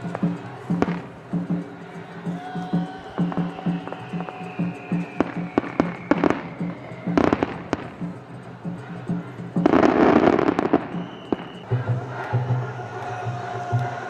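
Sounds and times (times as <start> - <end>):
firework crackling: 0.0 - 11.7
rhythmic festival music: 0.0 - 14.0
firework bangs: 3.2 - 8.1, 9.6 - 11.7.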